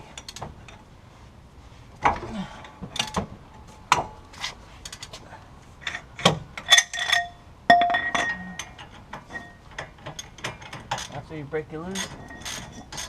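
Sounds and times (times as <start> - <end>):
ringing metallic clinks: 6.6 - 11.1.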